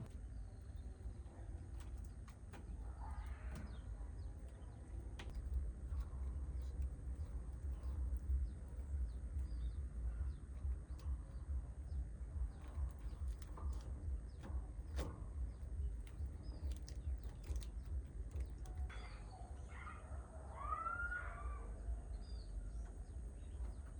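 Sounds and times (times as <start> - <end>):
wind rumble on microphone: 0.0 - 19.2
birds chirping: 0.0 - 23.9
scattered clicks: 1.7 - 19.0.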